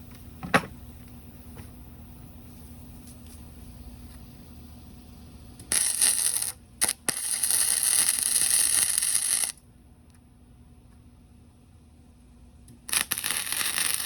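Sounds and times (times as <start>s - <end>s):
electric welding arc bursts: 5.3s - 9.6s, 12.9s - 14.0s.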